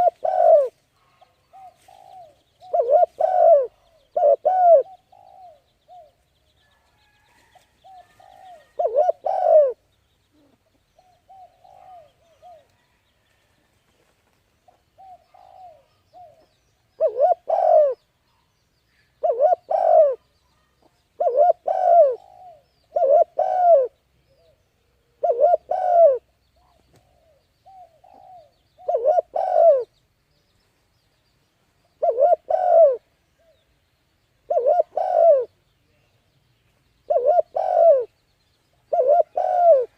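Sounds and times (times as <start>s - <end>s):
pigeon cooing: 0.0s - 6.2s, 7.9s - 9.8s, 10.4s - 12.7s, 15.0s - 18.0s, 19.2s - 24.6s, 25.2s - 29.9s, 32.0s - 33.6s, 34.5s - 35.5s, 37.1s - 38.1s, 38.9s - 39.9s.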